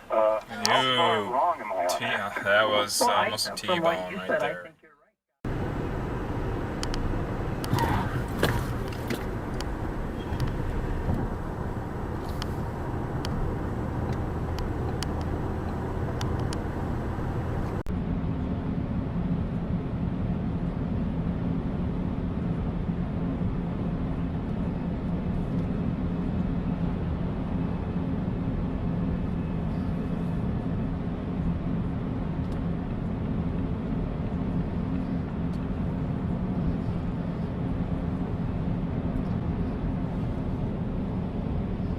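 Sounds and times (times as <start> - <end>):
car road and engine noise: 0.0 - 41.9
low engine drone: 5.5 - 41.9
scattered clicks and ticks: 6.8 - 7.7, 13.2 - 13.4, 14.0 - 16.7.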